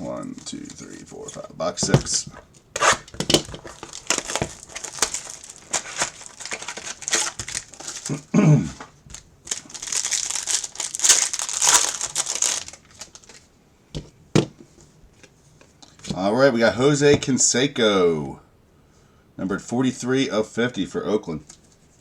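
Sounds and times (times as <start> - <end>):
cardboard rustling and clicking: 0.4 - 8.1
plastic wrapping crinkling and tearing: 2.8 - 8.2, 9.1 - 13.5.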